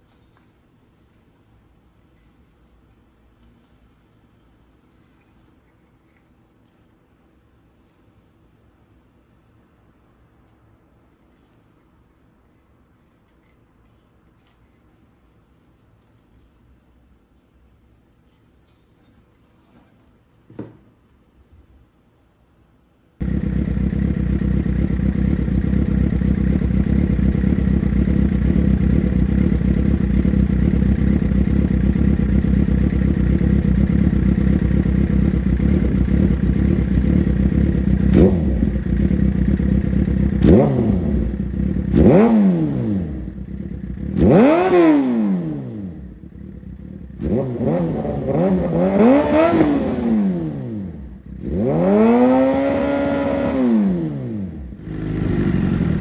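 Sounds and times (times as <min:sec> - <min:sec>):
motorcycle engine idling and revving: 0:23.2 - 0:56.0.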